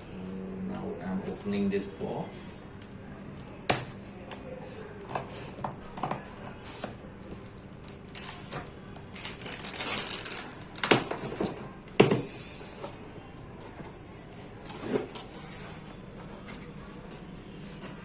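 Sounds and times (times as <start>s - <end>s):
packaging rustling and sliding: 9.2s - 10.6s.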